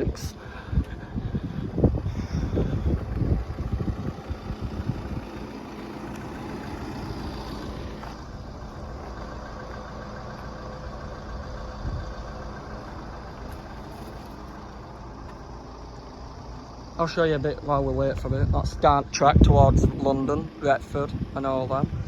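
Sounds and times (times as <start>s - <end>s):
wind gusts on microphone: 0.0s - 8.2s, 18.0s - 22.0s
vehicle engine idling: 0.0s - 22.0s.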